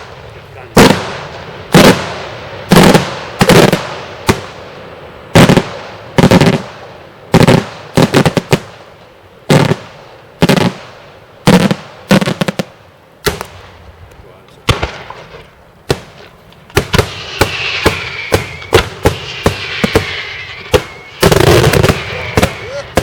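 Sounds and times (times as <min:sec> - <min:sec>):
fireworks bangs with echo: 0:00.0 - 0:13.8, 0:14.6 - 0:23.0
rattling firework reports: 0:13.3 - 0:23.0.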